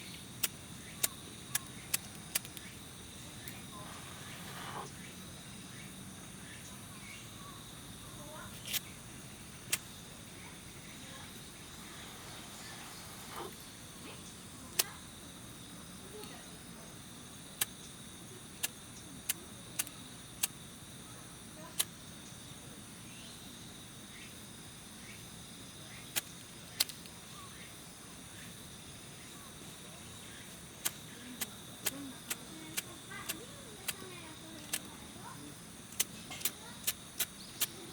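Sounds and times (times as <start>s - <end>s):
high insect trill: 0.0s - 37.9s.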